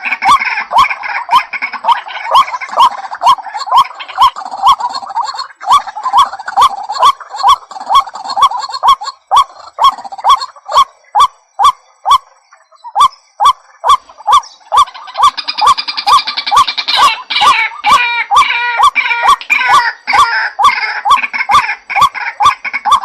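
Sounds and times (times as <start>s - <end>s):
waterhen calling harsh notes: 0.0s - 23.0s.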